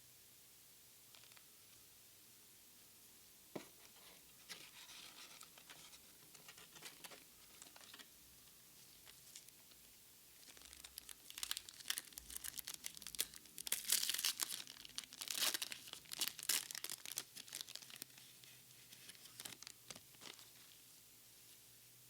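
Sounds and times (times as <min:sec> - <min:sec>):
foil pack crinkling and tearing: 0:10.4 - 0:20.8.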